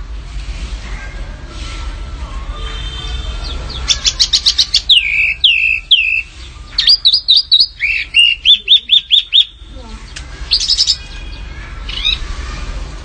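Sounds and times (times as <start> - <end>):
low rumble and hiss: 0.0 - 13.0
small songbirds chirping: 3.3 - 12.2.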